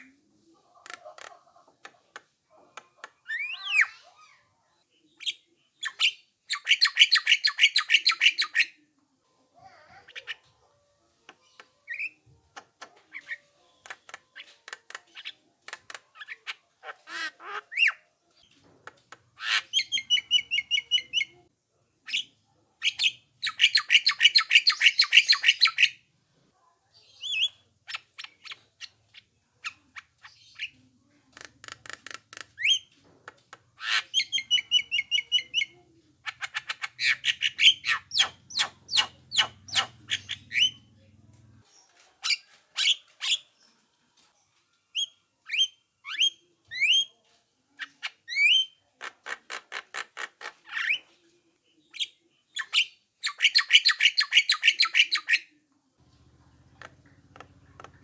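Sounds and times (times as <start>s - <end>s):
bird harsh rattling calls: 33.8s - 40.8s.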